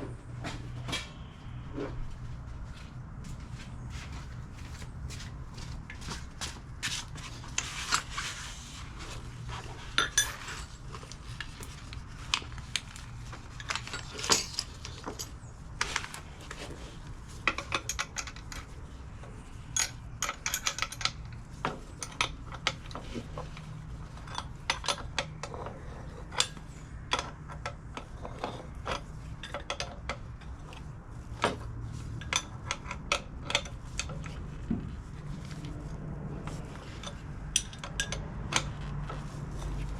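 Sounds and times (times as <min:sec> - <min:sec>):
steady low hum: 0:00.0 - 0:17.9
metal tools clinking: 0:10.0 - 0:10.7, 0:13.6 - 0:15.4.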